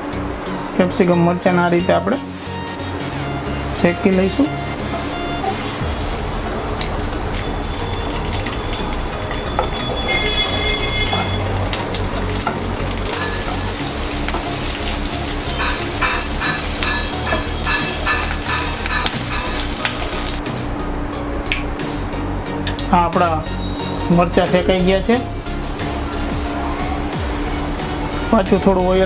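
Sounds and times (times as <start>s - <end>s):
peppers sizzling in hot oil: 5.0s - 20.4s, 24.9s - 28.4s.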